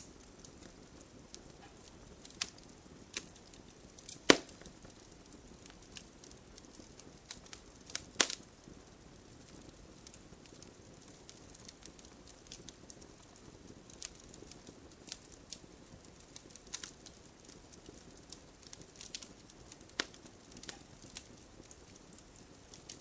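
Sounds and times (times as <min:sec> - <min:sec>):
bonfire crackling and popping: 0:00.0 - 0:23.0
steady rain: 0:00.0 - 0:23.0.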